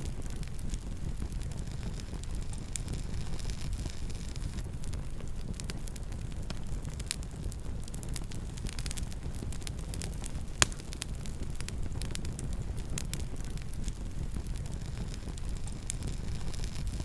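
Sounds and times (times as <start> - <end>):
campfire flames rumbling: 0.0 - 17.0
fire crackles and snaps: 0.0 - 17.0
loud fire pop: 9.3 - 13.2.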